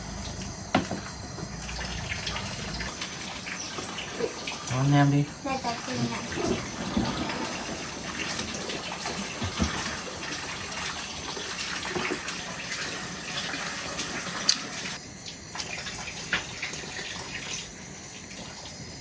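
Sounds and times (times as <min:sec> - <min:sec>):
heavy rain: 0:04.6 - 0:10.2.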